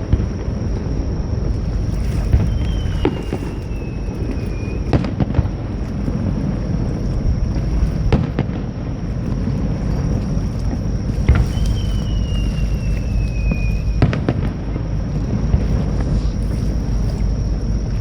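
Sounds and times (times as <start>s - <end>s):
falling firework whistle: 0.0s - 5.8s, 10.8s - 17.4s
fireworks bursting: 0.0s - 17.4s
wind and surf rumble: 0.0s - 18.0s.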